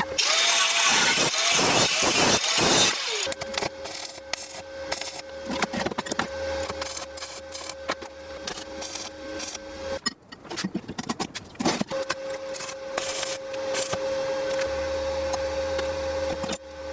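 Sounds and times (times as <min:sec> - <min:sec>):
power tool noise: 0:00.0 - 0:05.2.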